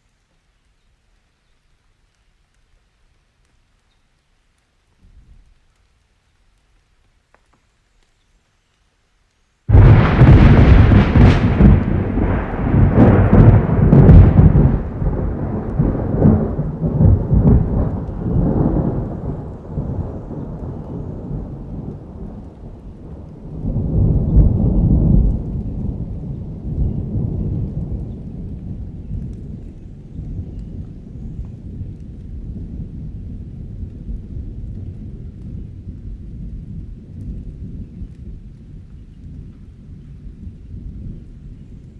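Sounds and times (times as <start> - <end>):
steady rain: 0.0 - 41.9
thunder rumbling: 9.7 - 41.9.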